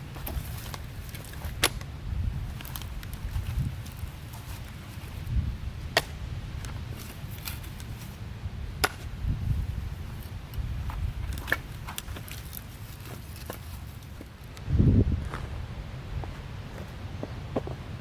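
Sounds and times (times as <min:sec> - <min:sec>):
steady low rumble: 0:13.8 - 0:18.0.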